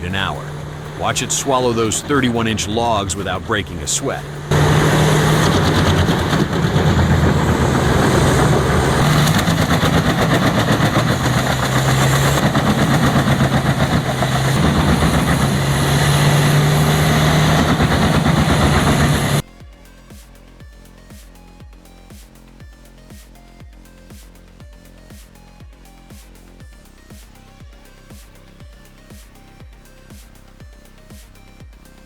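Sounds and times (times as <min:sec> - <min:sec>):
wood chipper engine drone: 0:00.0 - 0:19.5.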